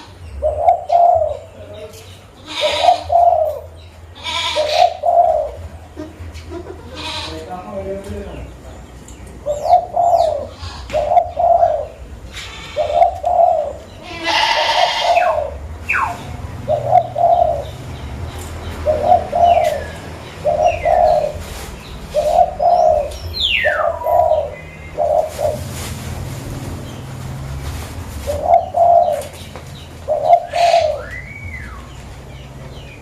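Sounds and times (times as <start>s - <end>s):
dove cooing: 0.0s - 7.4s, 9.4s - 18.1s, 18.7s - 32.0s
falling whistled bird chirps: 30.5s - 31.9s.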